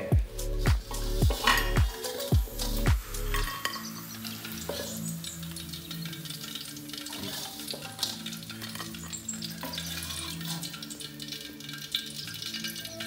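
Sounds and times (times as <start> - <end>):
meat sizzling in hot oil: 0.0 - 13.0
soft background music: 0.0 - 13.0
metal ladle scraping a wok: 0.9 - 1.8, 2.6 - 5.2, 7.1 - 10.7.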